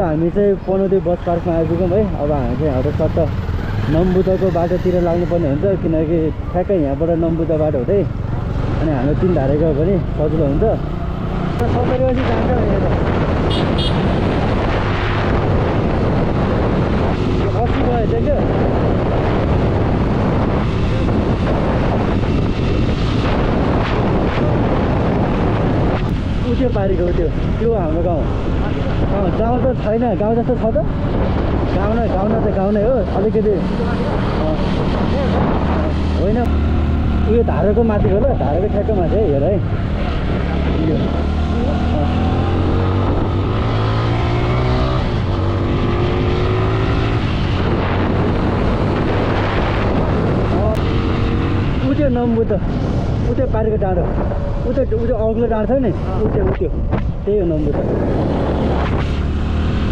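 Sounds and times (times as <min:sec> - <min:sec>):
steady rushing noise: 0:00.0 - 0:59.9
wind noise on microphone: 0:00.0 - 0:59.9.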